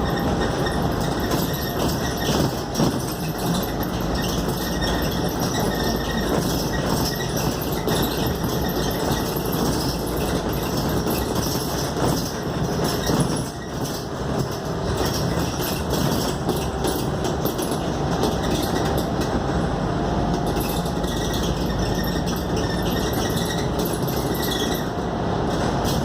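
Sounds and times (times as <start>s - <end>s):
bus engine and road noise: 0.0s - 26.0s.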